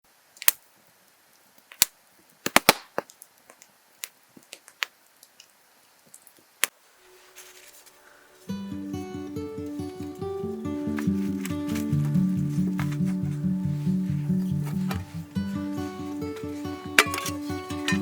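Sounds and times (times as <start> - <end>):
wood fire crackling: 0.2 - 18.0
music: 7.0 - 18.0.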